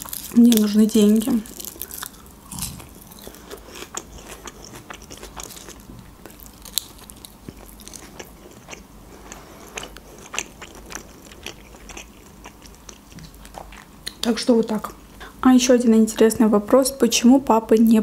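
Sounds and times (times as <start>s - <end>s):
food crunching: 0.0s - 14.4s
wet mouth clicks chewing: 1.8s - 14.3s.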